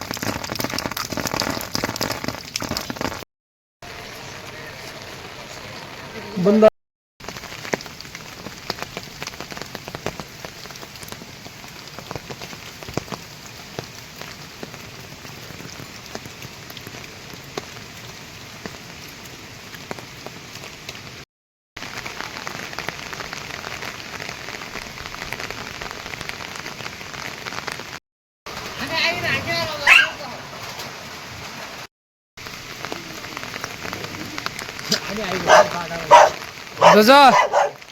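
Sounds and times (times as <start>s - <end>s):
raindrops ticking on a surface: 0.0s - 3.2s, 7.2s - 21.2s, 21.8s - 37.9s
steady rain falling: 0.0s - 3.2s, 3.8s - 21.2s, 21.8s - 37.9s.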